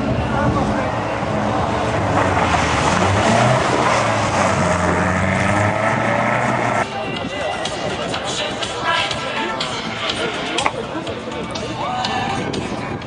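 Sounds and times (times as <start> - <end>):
race car engine running hard: 0.0 - 7.0.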